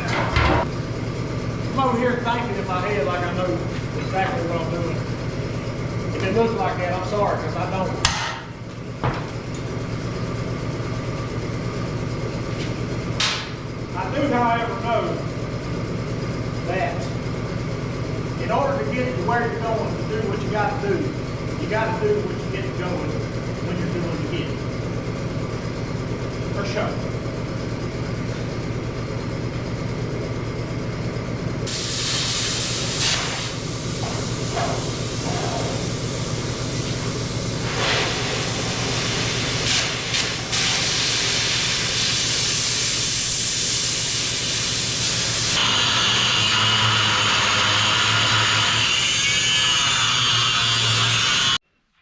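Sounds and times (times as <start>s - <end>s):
low mechanical hum: 0.0s - 52.0s
loud steady hiss: 31.7s - 48.7s.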